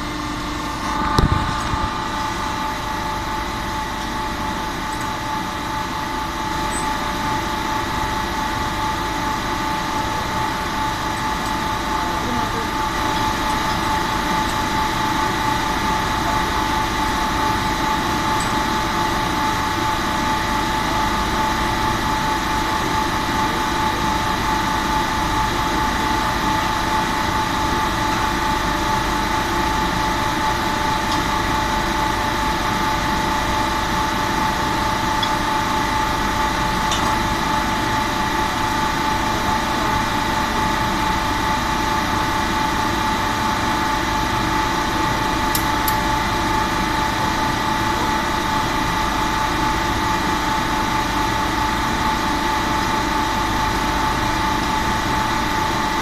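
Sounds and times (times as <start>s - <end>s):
high-pitched whine: 0.0s - 40.6s
machinery humming: 0.0s - 56.0s.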